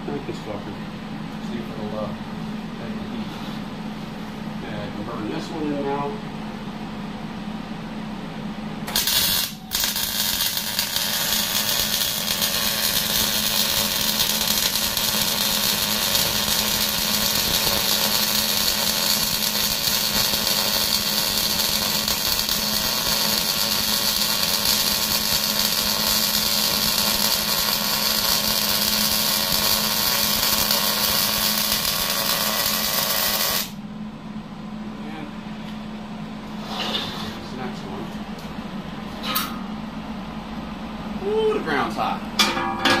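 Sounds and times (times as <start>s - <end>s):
welding arc crackling sizzle: 8.9s - 33.8s.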